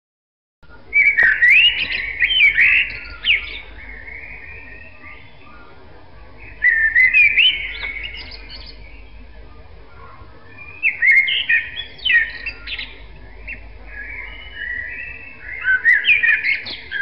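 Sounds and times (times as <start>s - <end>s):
songbird singing: 0.6s - 17.0s.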